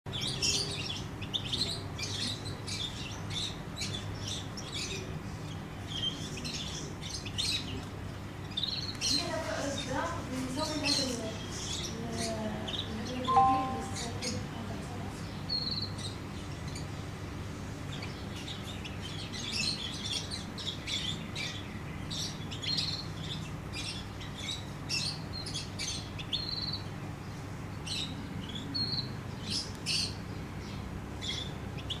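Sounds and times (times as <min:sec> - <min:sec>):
bird chirping and whistling: 0:13.3 - 0:14.1.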